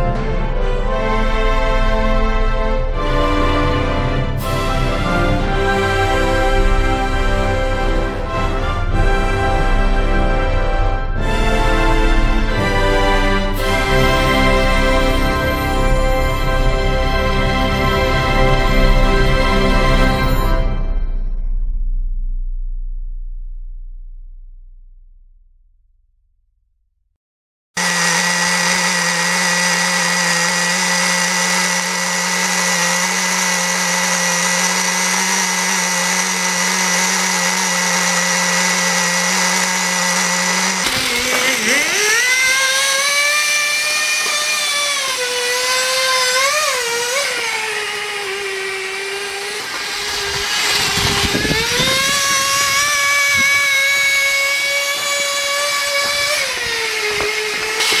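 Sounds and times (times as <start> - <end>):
model engine whining: 27.8 - 58.0.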